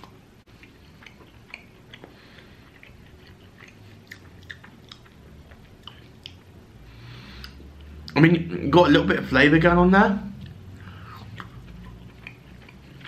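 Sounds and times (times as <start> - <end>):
man chewing with wet smacks: 0.0 - 6.7, 10.4 - 13.0.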